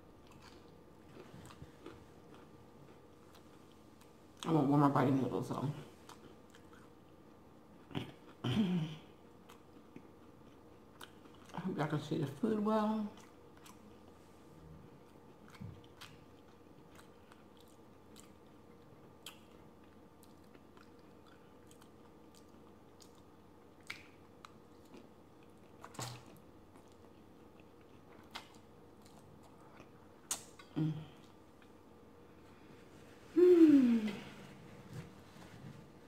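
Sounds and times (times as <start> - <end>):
chewing and mouth smacks: 0.2 - 4.5, 6.0 - 7.2, 9.4 - 11.6, 13.2 - 14.2, 14.9 - 31.8.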